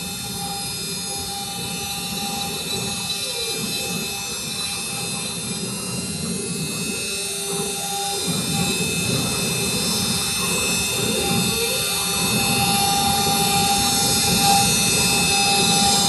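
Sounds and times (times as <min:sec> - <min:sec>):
axis motors gliding in pitch: 0:00.0 - 0:16.0
router spindle whine: 0:00.0 - 0:16.0.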